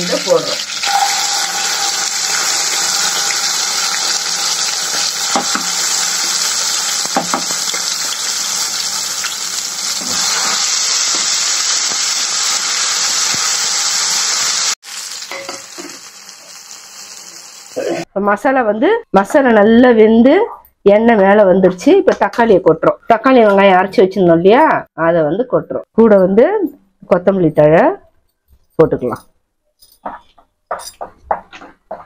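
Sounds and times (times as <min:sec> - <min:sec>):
spice paste sizzling in oil: 0:00.0 - 0:17.8.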